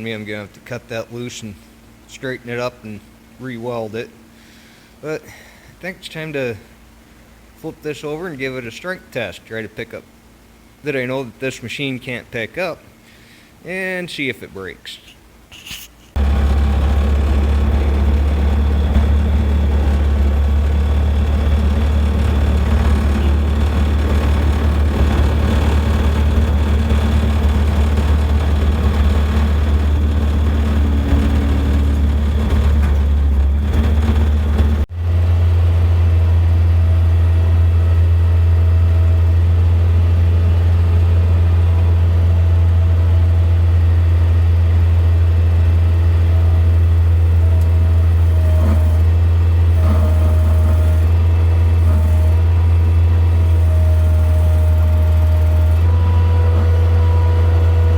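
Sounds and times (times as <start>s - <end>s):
skid steer engine running: 16.1s - 57.9s.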